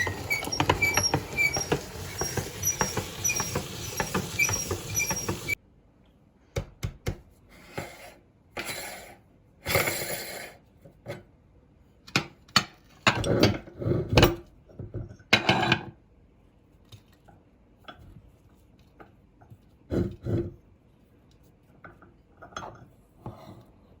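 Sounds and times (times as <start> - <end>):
meat grinder crushing candy: 0.0 - 5.5.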